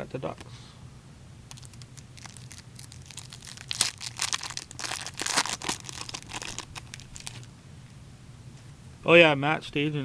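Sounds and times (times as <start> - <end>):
card pack wrapper crinkling: 1.5 - 7.5.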